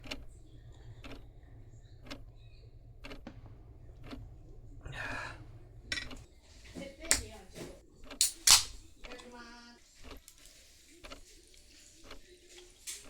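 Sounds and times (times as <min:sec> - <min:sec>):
faint regular ticking: 0:00.0 - 0:05.5
low steady hum: 0:00.0 - 0:07.9.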